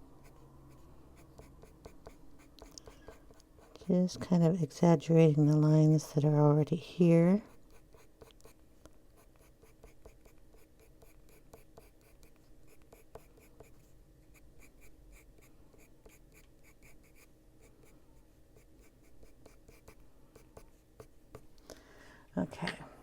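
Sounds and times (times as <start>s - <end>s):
pencil scratching on paper: 0.0s - 4.6s, 7.4s - 8.6s, 9.2s - 17.9s, 18.6s - 21.4s.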